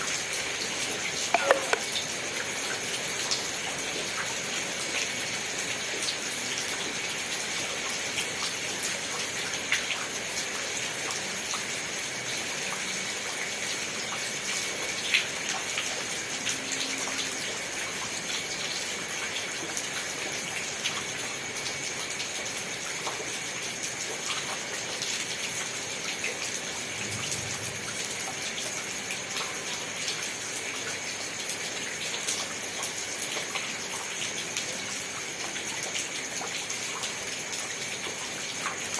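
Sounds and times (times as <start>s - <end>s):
steady rain hiss: 0.0s - 38.9s
raindrop ticks: 1.3s - 2.1s.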